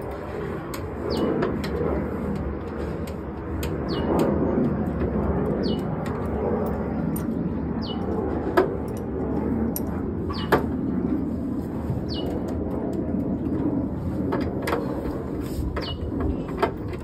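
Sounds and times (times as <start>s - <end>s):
sharp clicks: 0.7s - 8.2s.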